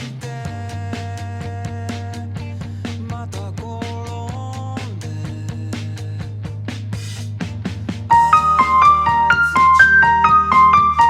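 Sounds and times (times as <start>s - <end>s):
pop-rock band music: 0.0s - 11.0s
held keyboard chord: 8.1s - 11.0s.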